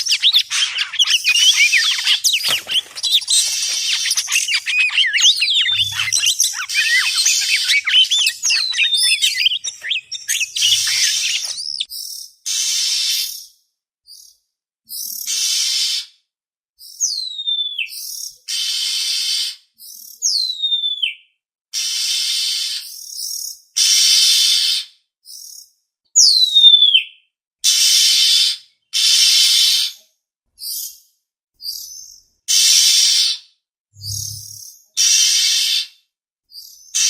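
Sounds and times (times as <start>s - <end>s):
bird harsh rasping churrs: 0.0s - 11.9s
bird whistles sliding down: 0.0s - 11.9s, 34.0s - 34.6s.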